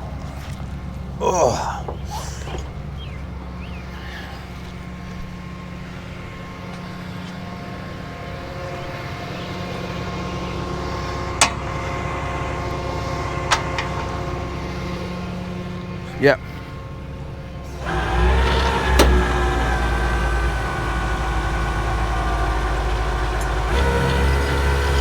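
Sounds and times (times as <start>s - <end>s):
truck engine running: 0.0s - 25.0s.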